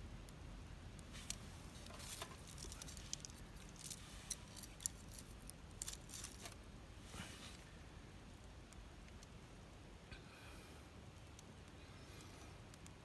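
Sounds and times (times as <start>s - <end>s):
low steady rumble: 0.0s - 13.0s
campfire crackling: 0.9s - 7.8s.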